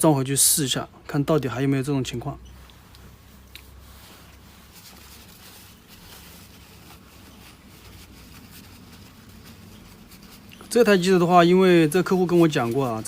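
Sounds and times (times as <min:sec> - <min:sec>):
low steady hum: 0:00.0 - 0:13.0
light rubbing: 0:02.3 - 0:13.0.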